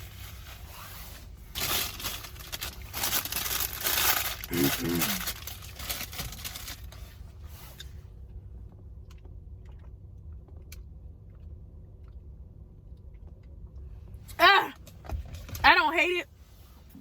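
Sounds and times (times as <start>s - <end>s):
person chewing: 9.0s - 13.9s.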